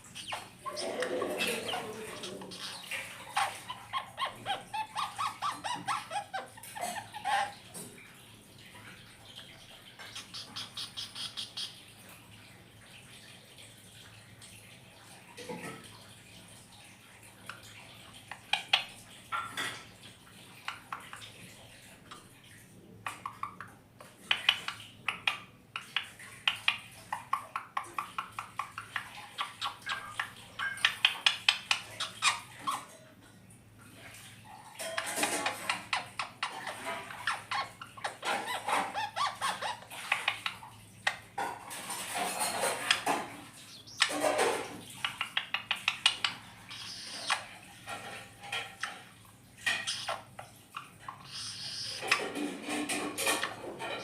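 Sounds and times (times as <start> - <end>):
parakeet chattering: 0.0 - 7.7, 10.0 - 11.8, 23.0 - 32.9, 34.8 - 41.2, 41.8 - 47.7, 48.5 - 54.0.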